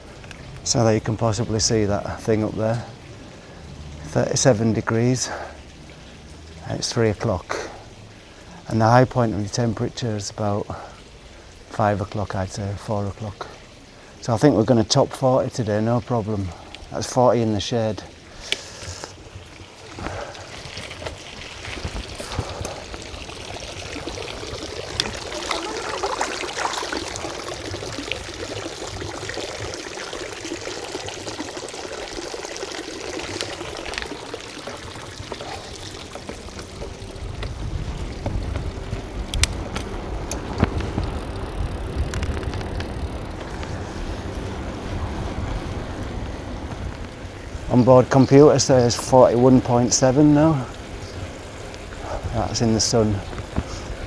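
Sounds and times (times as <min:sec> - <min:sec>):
wind and tyre noise: 0:00.0 - 0:54.0
bicycle clicks and rattles: 0:18.4 - 0:30.2, 0:32.7 - 0:54.0.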